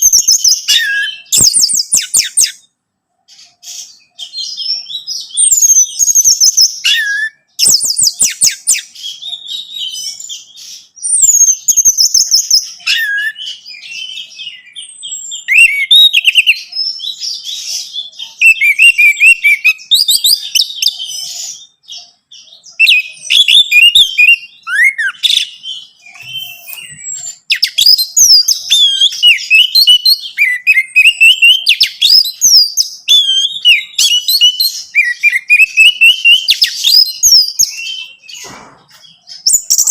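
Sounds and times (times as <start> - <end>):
thrush singing whistled trills: 0.0 - 39.9.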